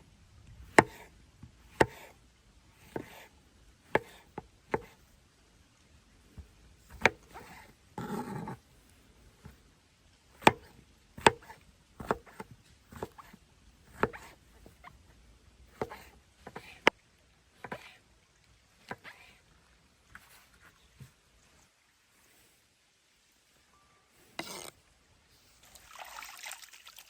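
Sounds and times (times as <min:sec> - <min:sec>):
sharp knocks and clicks: 0:00.7 - 0:01.1, 0:01.7 - 0:02.1, 0:03.9 - 0:05.0, 0:06.4 - 0:07.5, 0:10.4 - 0:14.8, 0:15.7 - 0:16.9.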